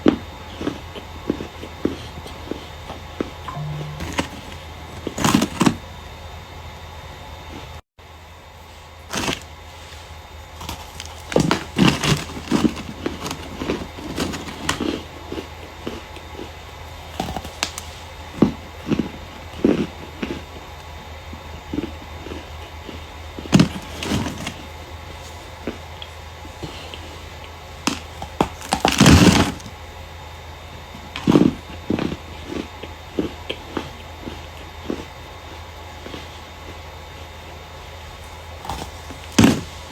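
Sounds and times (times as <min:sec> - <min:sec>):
starch chunks crunching: 0:38.1 - 0:39.9.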